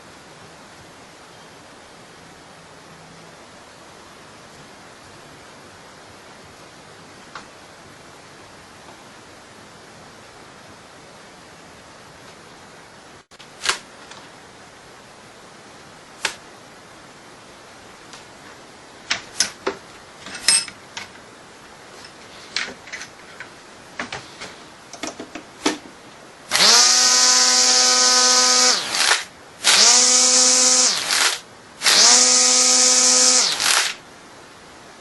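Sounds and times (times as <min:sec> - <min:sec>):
electric sander buzzing: 0:26.5 - 0:34.0.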